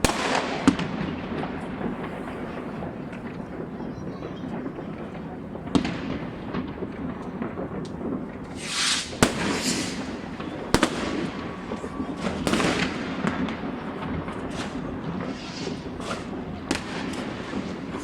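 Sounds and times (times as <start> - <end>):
firecrackers banging and crackling: 0.0 - 18.0
loud firework bangs: 0.0 - 18.0
hissing crackle bursts: 6.6 - 18.0.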